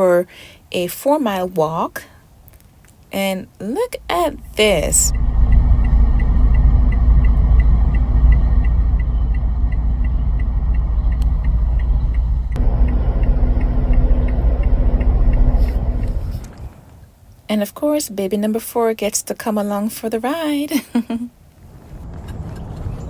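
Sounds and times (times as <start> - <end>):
wind rumbling on microphone: 3.8 - 17.1, 21.5 - 23.0.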